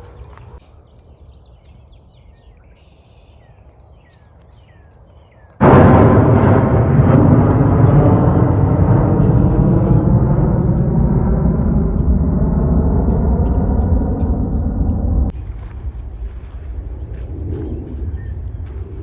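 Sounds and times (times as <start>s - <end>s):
birds chirping faintly: 0.0s - 5.6s.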